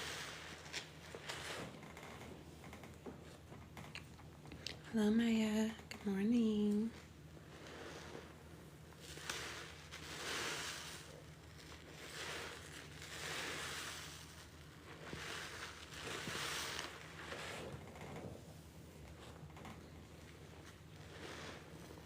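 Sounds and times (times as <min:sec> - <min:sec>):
low steady hum: 0:00.0 - 0:22.0
water gushing from squeezed sponge: 0:09.0 - 0:17.8.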